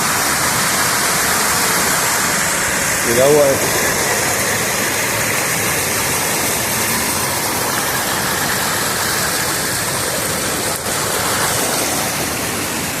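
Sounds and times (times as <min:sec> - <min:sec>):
waterfall pouring: 0:00.0 - 0:13.0.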